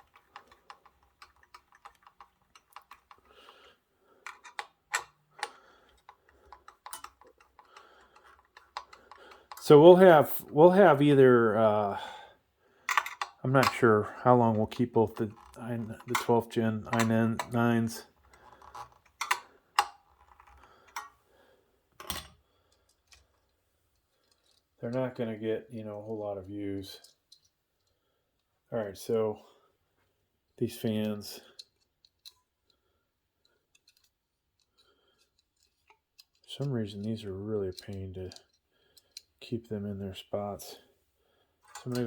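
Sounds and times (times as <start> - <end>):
screwdriver clicking on metal parts: 0.0 - 3.6, 4.2 - 9.8, 12.9 - 13.8, 14.6 - 17.6, 18.3 - 21.2, 33.4 - 39.4, 41.6 - 42.0.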